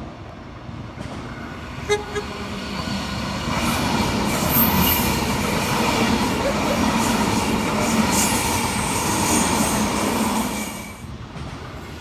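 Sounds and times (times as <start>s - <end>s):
passing train running noise: 0.0s - 12.0s
train horn toots: 1.8s - 2.4s.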